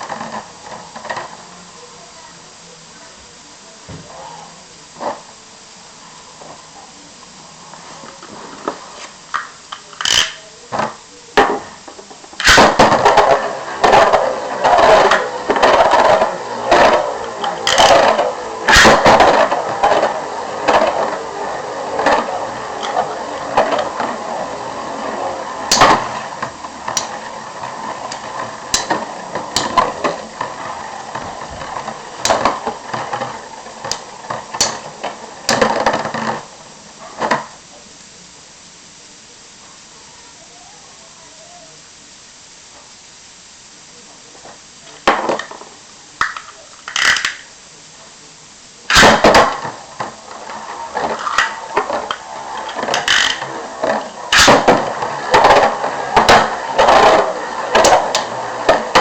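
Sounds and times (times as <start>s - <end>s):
spinning tops clashing: 17.6s - 20.0s.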